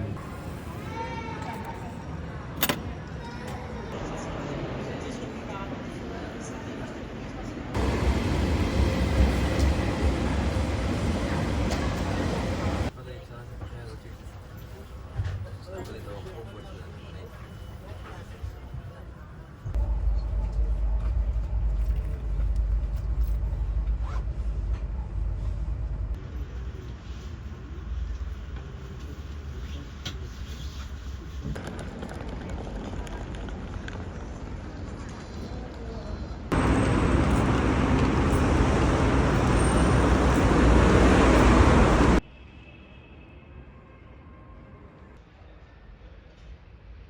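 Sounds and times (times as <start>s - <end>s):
vehicle rumbling: 7.7s - 12.9s, 19.6s - 30.0s, 36.4s - 42.2s.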